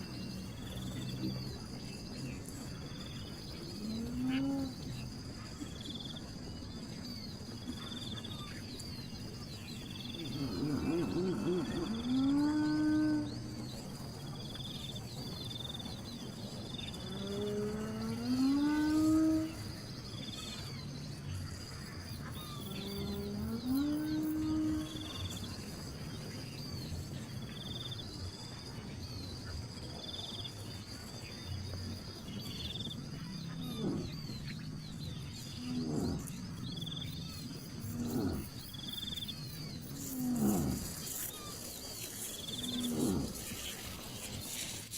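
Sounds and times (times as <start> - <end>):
insects chirping: 0.0 - 44.9
low-pitched animal calls: 3.6 - 5.0, 10.0 - 13.7, 17.0 - 19.7, 22.3 - 25.4, 32.7 - 41.7, 42.5 - 43.8.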